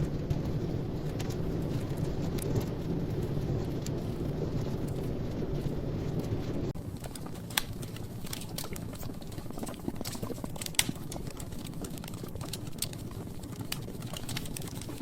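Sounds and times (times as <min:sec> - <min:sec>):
flame rushing: 0:00.0 - 0:15.0
wood fire crackling: 0:00.0 - 0:15.0
loud wood snaps: 0:07.0 - 0:08.9.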